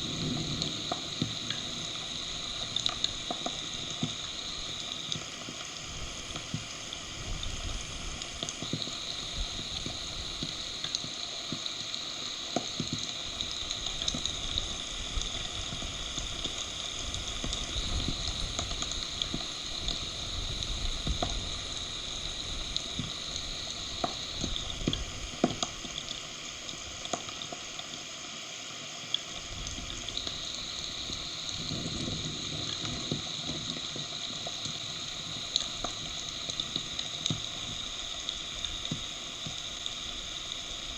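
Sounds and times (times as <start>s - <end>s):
low thunder rumble: 0.0s - 3.3s
raindrop hits: 0.0s - 4.8s
heavy rain hissing: 0.0s - 40.9s.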